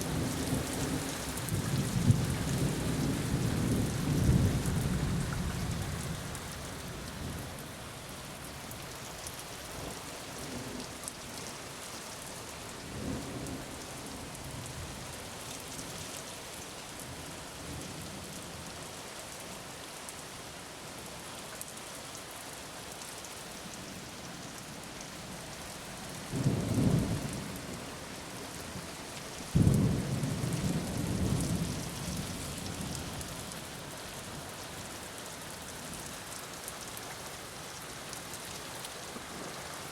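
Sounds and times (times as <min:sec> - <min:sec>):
rain falling: 0:00.0 - 0:39.9
thunder rumbling: 0:29.5 - 0:33.2.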